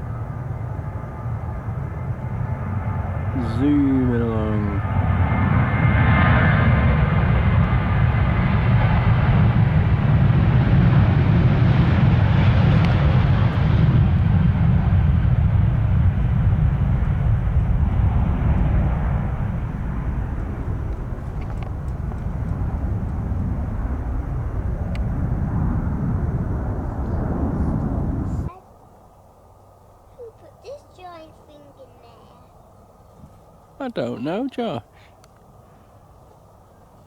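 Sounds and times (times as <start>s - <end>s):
jet engines at takeoff: 0.0s - 31.8s, 32.9s - 37.0s.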